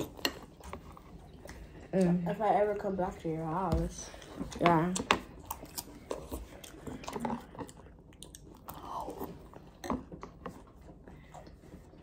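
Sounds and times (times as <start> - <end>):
cereal crunching while chewing: 4.2 - 11.6.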